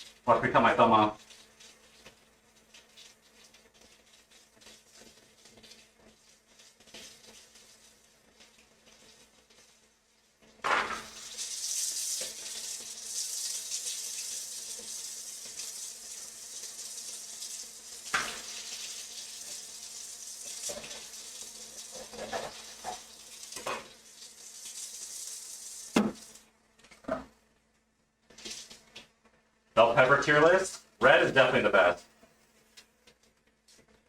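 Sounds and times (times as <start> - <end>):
items knocking against sink: 10.6 - 11.2, 26.0 - 26.3
tap running: 25.9 - 26.4.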